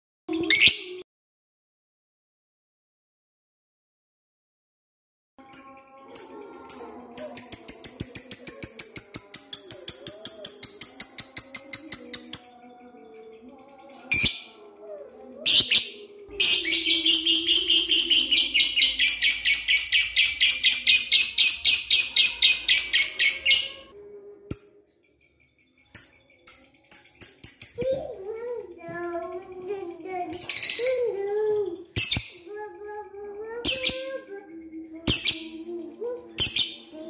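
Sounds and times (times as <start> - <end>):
bird trilling: 15.4 - 23.9
lovebird chattering: 15.5 - 23.9.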